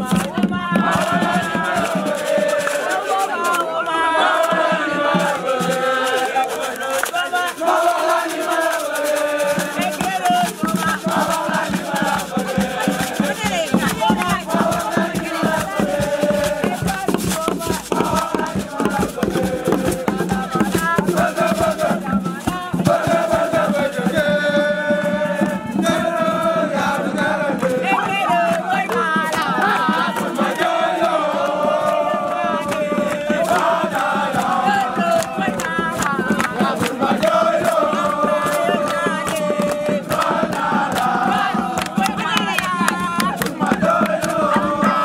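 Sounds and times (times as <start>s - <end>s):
fast percussive beat: 0.0s - 45.0s
group of voices chanting: 0.0s - 45.0s.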